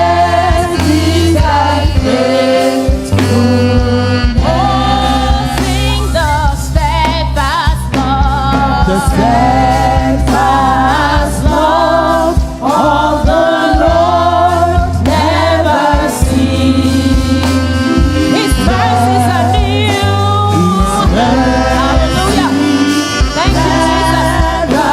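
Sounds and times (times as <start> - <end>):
band accompaniment: 0.0 - 24.9
group singing worship song: 0.0 - 24.9.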